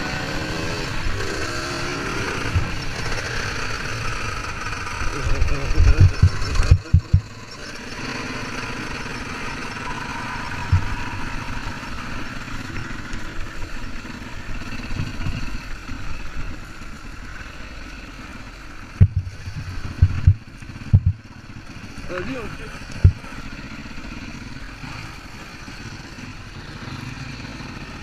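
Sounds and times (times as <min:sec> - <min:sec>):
dirt bike engine running: 0:00.0 - 0:28.0
loud low thumps: 0:05.7 - 0:07.3, 0:10.7 - 0:11.2, 0:19.0 - 0:21.2.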